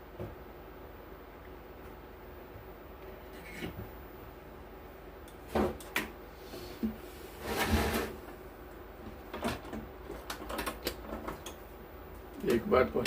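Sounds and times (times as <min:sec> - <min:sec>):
steady low hum: 0:00.0 - 0:13.0
scraping rustle: 0:07.1 - 0:08.4.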